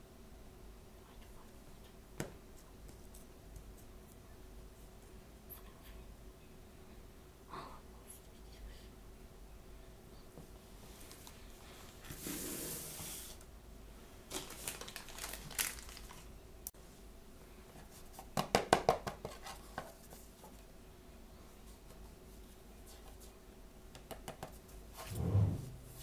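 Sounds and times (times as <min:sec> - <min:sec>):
packaging tearing and crinkling: 0:14.3 - 0:16.3.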